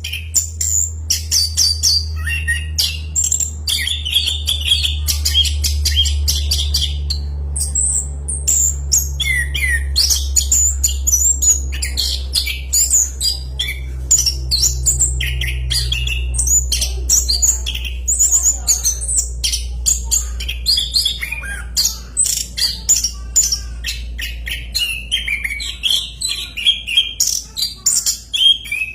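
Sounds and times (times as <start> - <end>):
low hum: 0.0 - 26.5.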